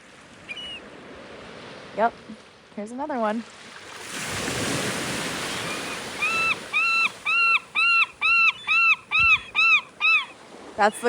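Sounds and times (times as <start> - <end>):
gull calling: 0.5 - 0.8, 5.5 - 11.0.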